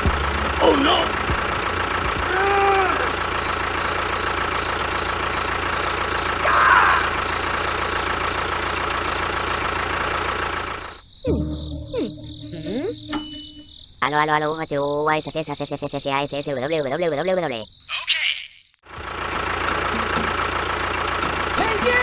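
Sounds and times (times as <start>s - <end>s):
small engine running: 0.0s - 11.6s, 18.9s - 22.0s.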